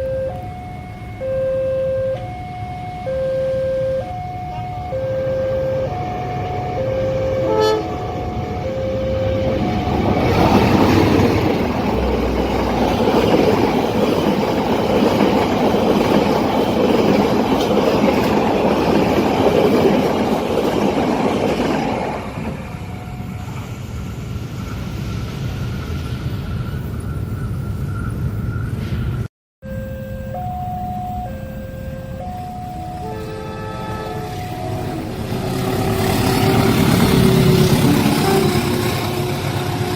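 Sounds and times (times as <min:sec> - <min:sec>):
two-note warning tone: 0:00.0 - 0:10.4, 0:29.6 - 0:38.8
train passing at speed: 0:03.9 - 0:29.3, 0:32.2 - 0:39.9.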